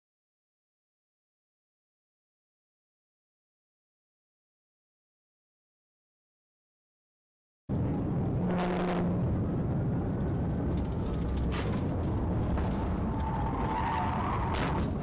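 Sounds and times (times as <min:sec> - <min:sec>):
car road and wind noise: 0:07.7 - 0:15.0.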